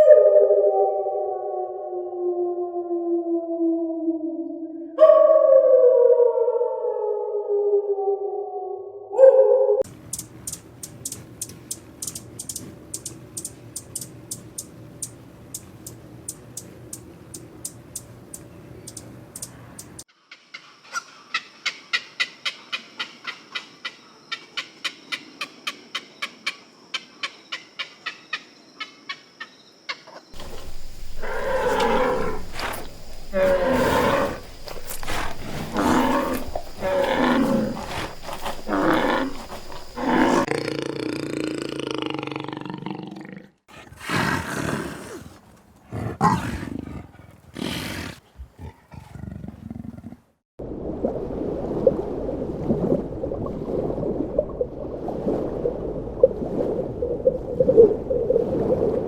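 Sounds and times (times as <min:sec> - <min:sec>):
big cat roaring: 0:31.2 - 0:50.3.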